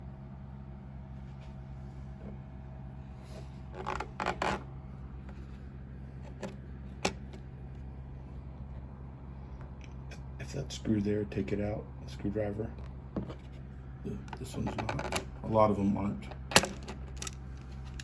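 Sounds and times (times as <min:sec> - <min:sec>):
steady low hum: 0:00.0 - 0:18.0
plastic clicks and rustles: 0:16.3 - 0:18.0.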